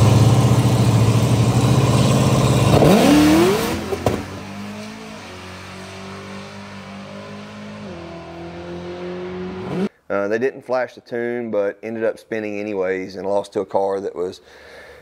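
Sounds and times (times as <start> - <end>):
car engine rumbling and revving: 0.0 - 9.9.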